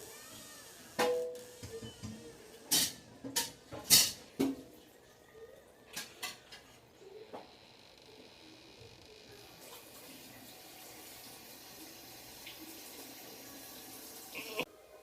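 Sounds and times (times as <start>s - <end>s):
dishes and utensils clattering: 1.0s - 5.0s, 5.9s - 6.9s.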